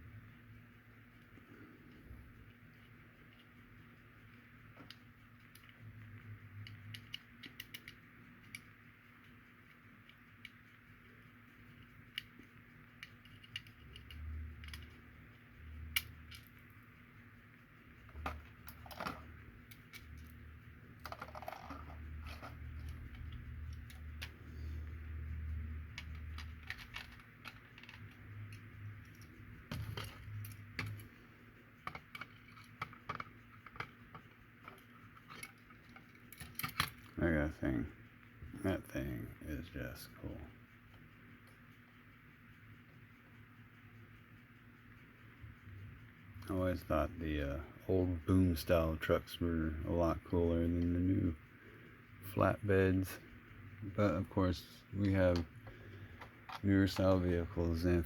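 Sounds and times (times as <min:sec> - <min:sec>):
small model parts clicking and rattling: 0:02.4 - 0:16.7, 0:18.0 - 0:24.5, 0:25.8 - 0:31.2, 0:31.8 - 0:37.8.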